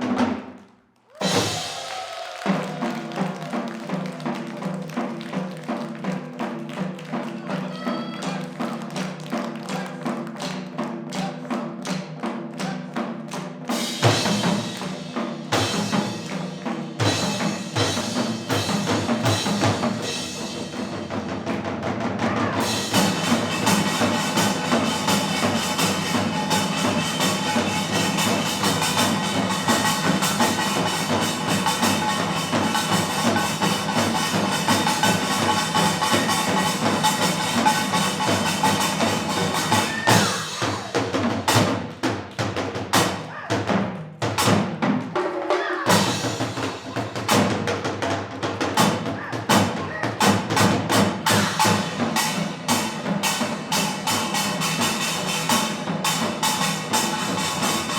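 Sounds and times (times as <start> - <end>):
percussion ensemble playing: 0.0 - 57.9
loud percussion hit: 22.6 - 41.9.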